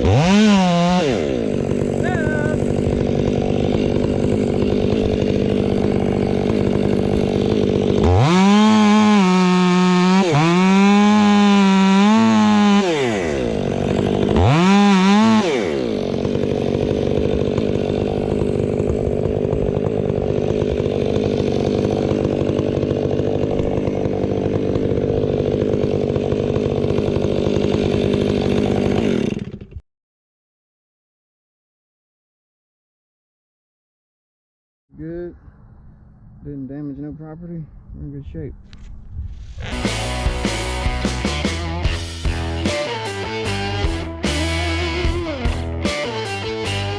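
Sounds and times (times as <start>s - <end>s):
chainsaw revving and idling: 0.0s - 29.8s, 39.4s - 46.9s.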